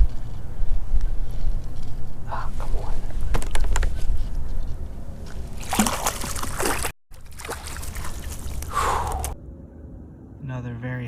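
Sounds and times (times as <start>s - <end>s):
low wind rumble: 0.0s - 11.0s
water splashing and sloshing: 2.8s - 9.4s.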